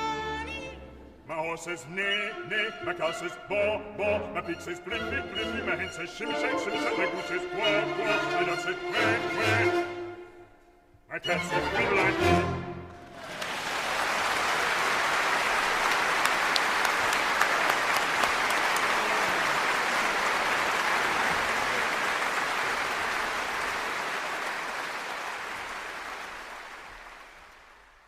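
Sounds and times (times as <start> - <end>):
audience applauding: 13.0 - 28.0.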